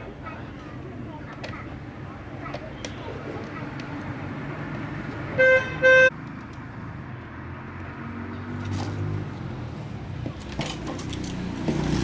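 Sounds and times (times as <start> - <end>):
vehicle horn honks: 5.4 - 6.1.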